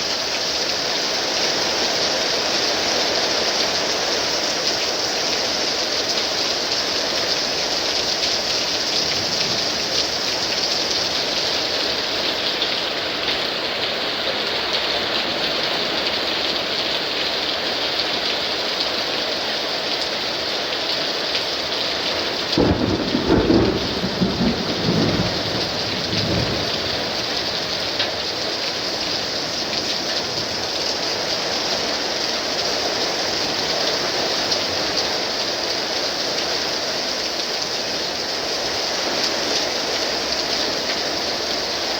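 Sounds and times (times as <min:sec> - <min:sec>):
heavy rain pouring: 0:00.0 - 0:41.9
thunder rumbling: 0:08.3 - 0:12.0, 0:22.6 - 0:30.6.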